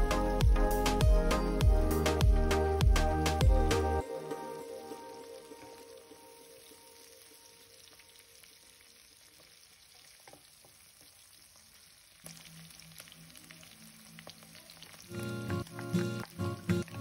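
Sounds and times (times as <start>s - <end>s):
food sizzling in a wok: 4.1s - 17.0s.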